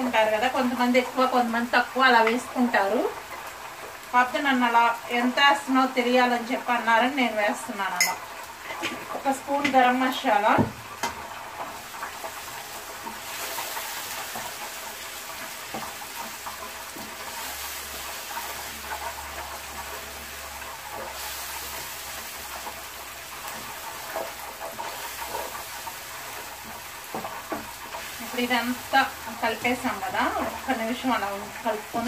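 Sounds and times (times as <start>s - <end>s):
masala sizzling in oil: 0.0s - 32.0s
spatula scraping and tapping pan: 8.0s - 9.9s, 10.6s - 20.3s, 20.9s - 28.3s.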